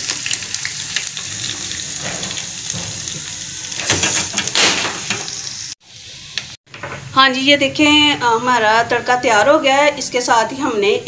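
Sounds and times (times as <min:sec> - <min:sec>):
garlic sizzling in hot fat: 0:00.0 - 0:06.8.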